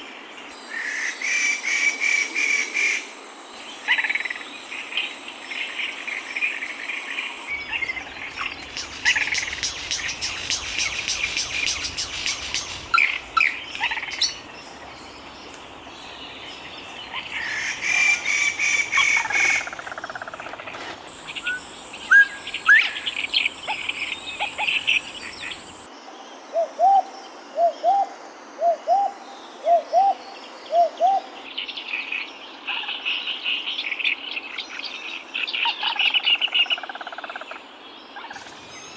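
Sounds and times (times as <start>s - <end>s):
insect drone: 2.9s - 29.8s
bird calls and chirps: 6.4s - 25.9s
short upward-inflected calls: 7.5s - 15.4s.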